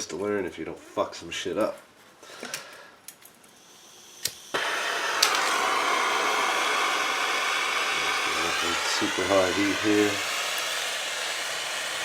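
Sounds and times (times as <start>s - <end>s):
heat gun blowing hiss: 3.5s - 12.0s.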